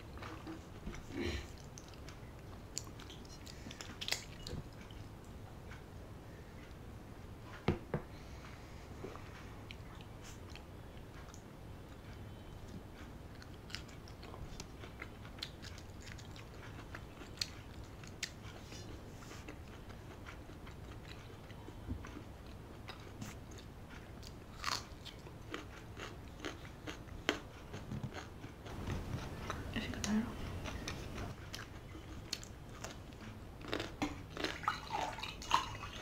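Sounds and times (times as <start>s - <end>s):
chewing and biting food: 0.0s - 5.8s, 13.0s - 29.7s, 30.4s - 36.0s.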